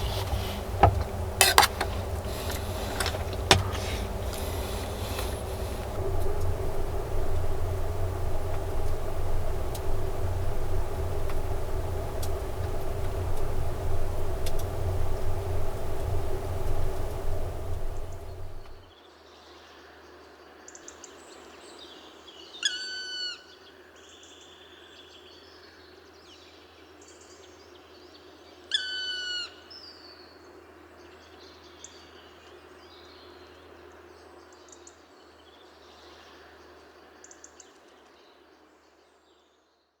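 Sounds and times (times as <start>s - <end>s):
background hush: 0.0s - 18.8s.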